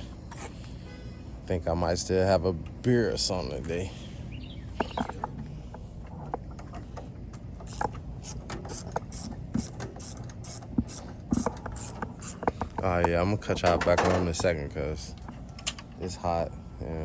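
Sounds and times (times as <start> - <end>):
steady low hum: 0.0 - 17.0
hand tools clicking and tapping: 4.8 - 15.9.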